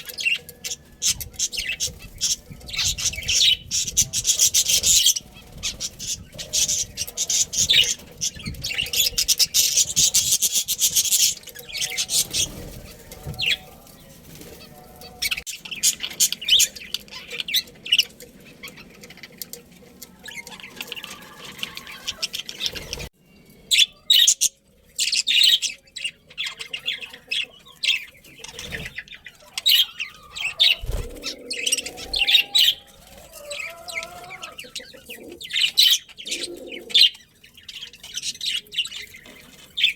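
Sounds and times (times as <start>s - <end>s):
budgerigars chirping and chattering: 0.0s - 39.9s
wings flapping: 30.4s - 34.4s.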